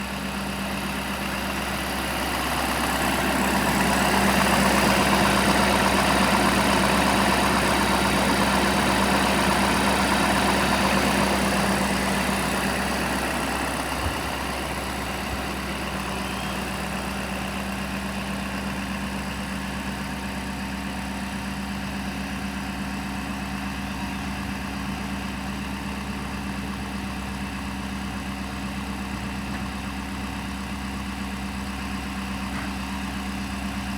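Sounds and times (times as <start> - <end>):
diesel truck engine idling: 0.0 - 33.9.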